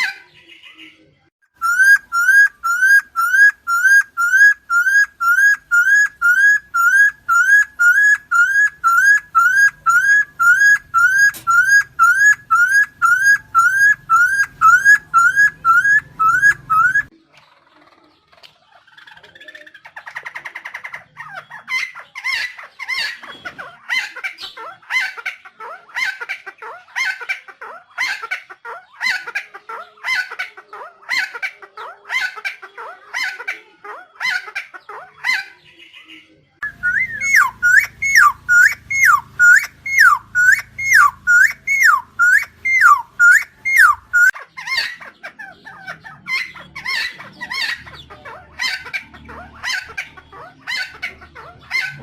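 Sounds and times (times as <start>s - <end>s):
bird swooping calls: 1.6s - 17.1s, 36.6s - 44.4s
bird calling repeated short notes: 36.6s - 44.4s.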